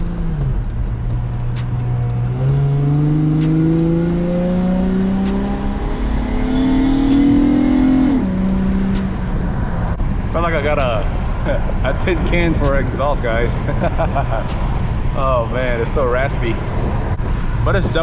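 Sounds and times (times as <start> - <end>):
raspy car engine accelerating: 0.0 - 10.0
music with steady beat: 0.0 - 15.8, 17.0 - 18.0.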